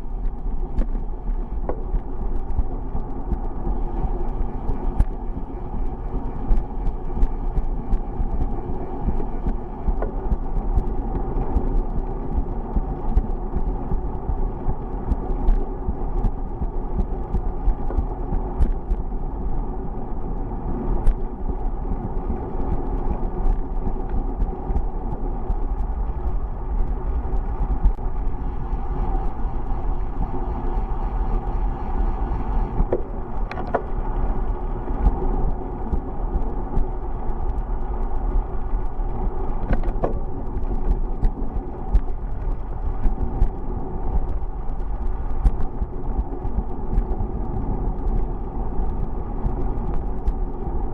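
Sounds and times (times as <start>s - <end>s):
bicycle road noise: 0.0s - 50.9s
wind rumble on microphone: 0.0s - 50.9s
small clicks and rattles: 32.4s - 50.9s.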